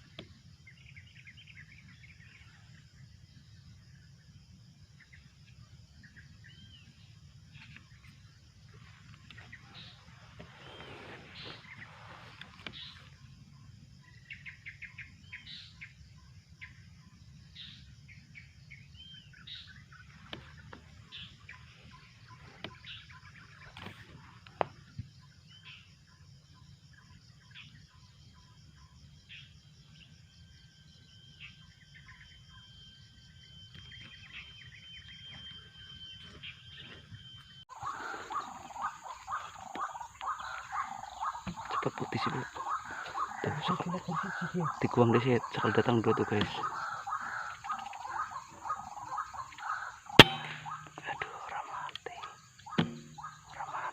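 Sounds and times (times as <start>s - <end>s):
rapidly repeated bird calls: 0.0s - 53.9s
birds chirping and whistling: 6.0s - 13.3s, 17.5s - 25.9s, 30.7s - 53.9s
thin steady tone: 50.2s - 53.9s.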